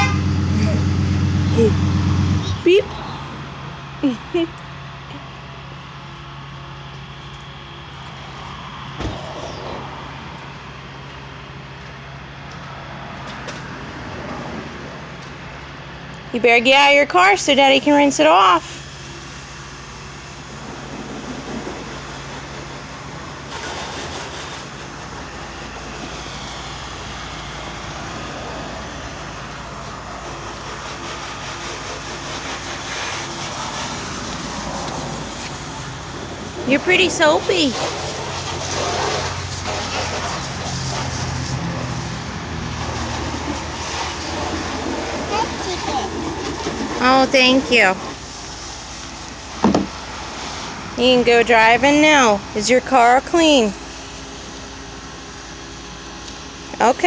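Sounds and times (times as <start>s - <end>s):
low mechanical hum: 0.0s - 57.0s
water spraying from hose: 16.6s - 55.9s
sharp knock: 49.6s - 49.9s.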